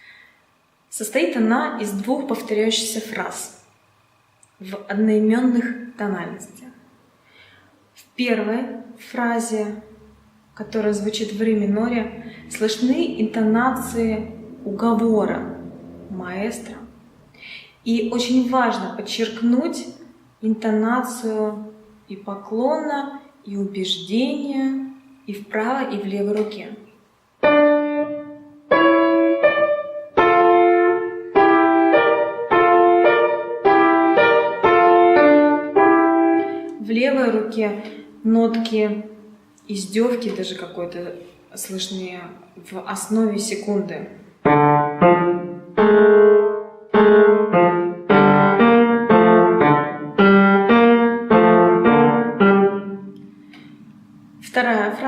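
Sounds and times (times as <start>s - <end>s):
piano chords: 9.8s - 20.0s, 27.4s - 37.6s, 44.4s - 55.0s.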